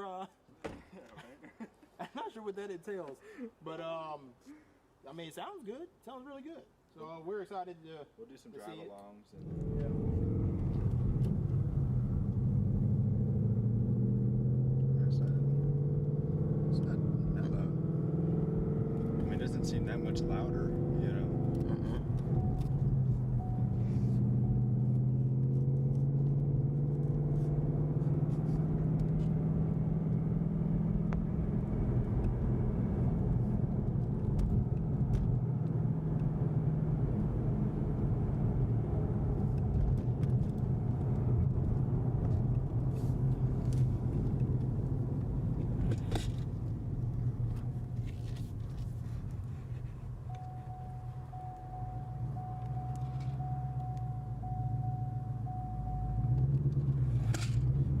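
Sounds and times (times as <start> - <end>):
car exhaust droning at cruise: 10.0 - 36.0, 41.0 - 58.0.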